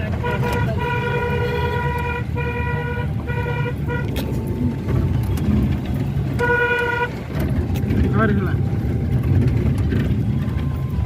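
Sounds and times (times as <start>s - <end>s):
vehicle engine rumble: 0.0s - 11.0s
vehicle horn honking: 0.1s - 4.4s, 6.4s - 7.4s.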